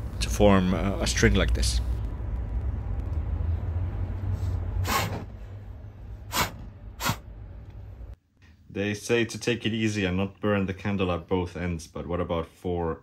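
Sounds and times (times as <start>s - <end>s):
steady low rumble: 0.0s - 8.2s.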